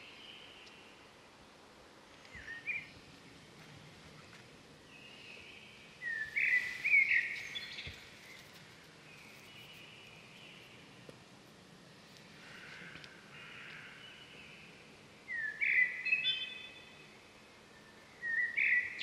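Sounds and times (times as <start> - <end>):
outdoor background noise: 0.0 - 19.0
birds calling in whistled glides: 4.9 - 10.7, 15.3 - 17.0, 17.8 - 19.0.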